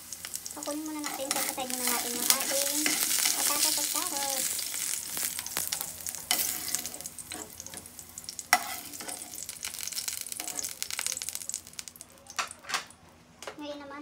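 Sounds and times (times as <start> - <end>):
vegetables sizzling in hot oil: 0.0 - 12.5
metal spoon scraping pan: 1.0 - 3.7, 8.5 - 9.4.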